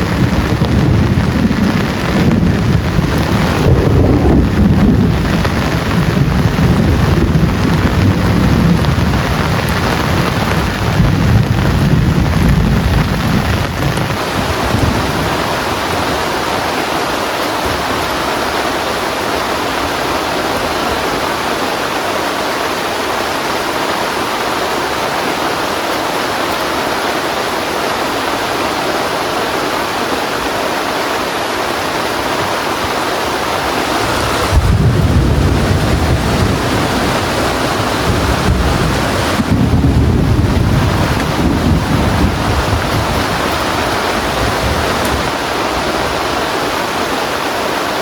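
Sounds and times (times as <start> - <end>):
low thunder rumble: 0.0 - 21.7, 33.6 - 46.8
heavy rain falling: 0.0 - 48.0.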